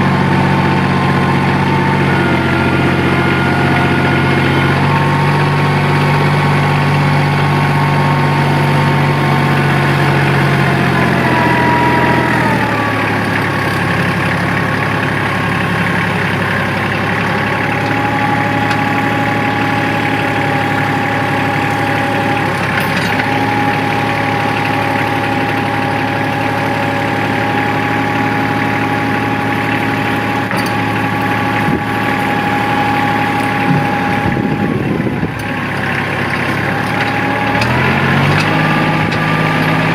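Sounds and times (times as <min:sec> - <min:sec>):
tractor diesel engine running: 0:00.0 - 0:39.9
steady high whine: 0:12.9 - 0:35.6.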